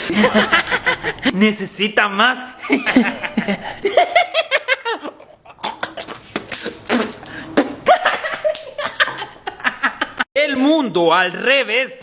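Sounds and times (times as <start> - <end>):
snickering and laughter: 0.0 - 1.3, 2.6 - 6.3, 7.8 - 10.2.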